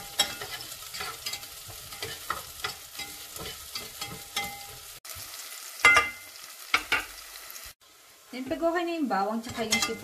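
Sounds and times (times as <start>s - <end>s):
spatula scraping a pan: 0.0s - 5.0s, 9.4s - 10.0s
garlic and onion sizzling in oil: 0.0s - 10.0s.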